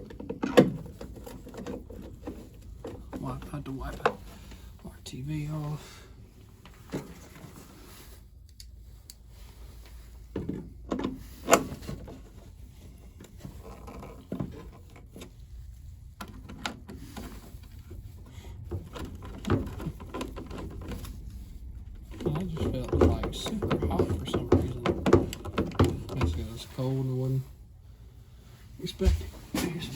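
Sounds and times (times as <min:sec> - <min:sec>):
handling knocks and clicks: 0:00.0 - 0:04.3, 0:18.6 - 0:26.6.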